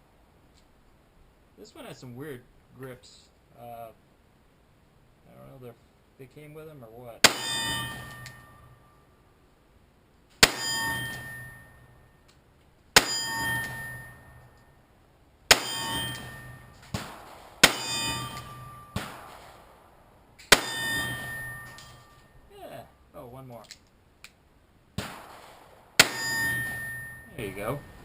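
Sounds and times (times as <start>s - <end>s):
revolver gunshots: 7.2s - 8.6s, 10.4s - 11.5s, 15.5s - 22.2s, 25.0s - 27.7s
short metallic ringing: 7.3s - 9.1s, 10.4s - 12.2s, 13.0s - 14.8s, 15.5s - 16.8s, 17.6s - 19.0s, 20.5s - 22.5s, 26.0s - 28.0s.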